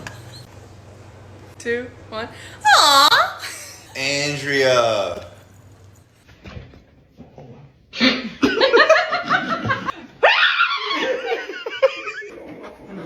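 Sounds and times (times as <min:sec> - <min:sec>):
people laughing loudly: 0:08.0 - 0:12.3.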